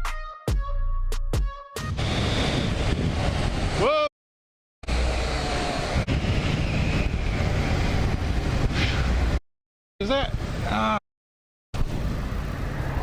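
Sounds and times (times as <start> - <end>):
wind and road noise: 1.9 - 3.9, 4.8 - 9.4, 10.0 - 11.0, 11.8 - 13.0
short rising whistle: 5.3 - 8.0.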